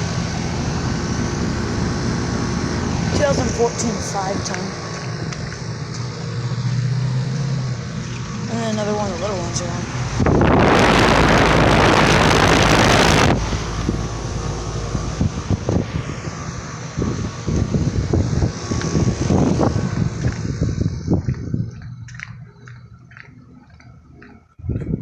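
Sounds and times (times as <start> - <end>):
condenser fan rush of air: 0.0 - 21.9
heat pump humming: 0.0 - 22.7.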